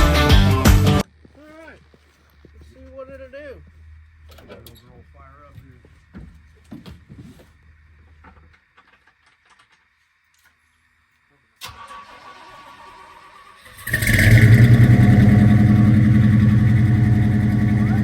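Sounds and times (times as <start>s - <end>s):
starter cranking engine: 11.6s - 18.0s
engine running loudly: 13.8s - 18.0s.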